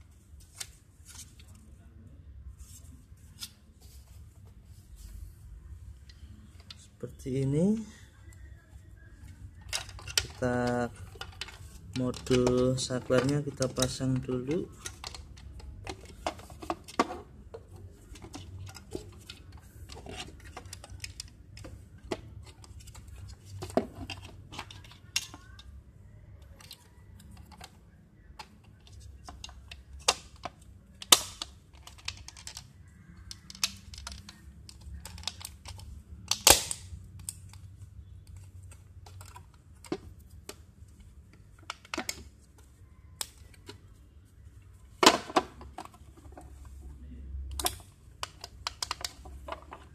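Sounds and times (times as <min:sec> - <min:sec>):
plastic and metal parts clicking: 0:09.2 - 0:25.7, 0:26.4 - 0:43.9, 0:47.5 - 0:49.9.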